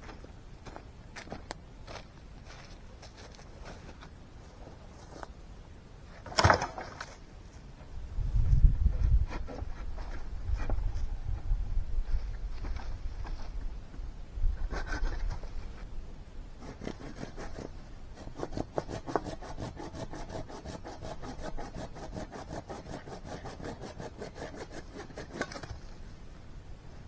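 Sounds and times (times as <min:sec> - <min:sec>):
hand saw cutting wood: 0:16.6 - 0:25.7.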